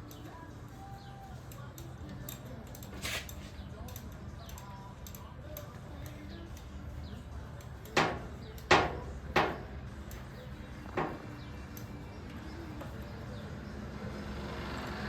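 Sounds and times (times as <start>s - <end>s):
wrench striking metal with ringing: 0.1s - 12.6s.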